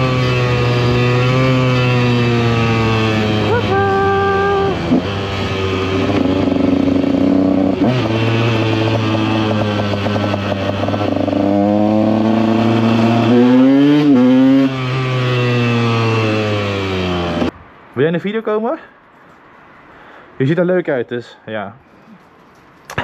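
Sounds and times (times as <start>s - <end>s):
two-stroke motorcycle engine: 0.0s - 17.5s.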